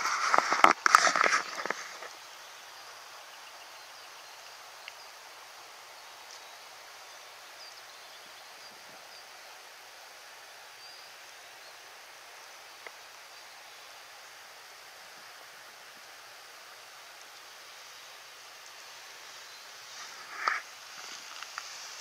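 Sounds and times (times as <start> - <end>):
mountain stream flowing: 0.0 - 22.0
faint high bird chirps: 10.7 - 11.8.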